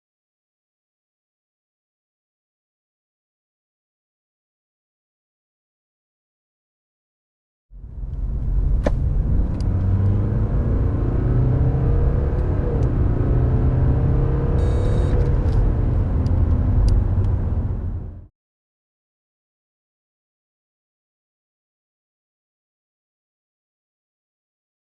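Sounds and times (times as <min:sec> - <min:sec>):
diesel car engine accelerating: 0:07.8 - 0:18.3.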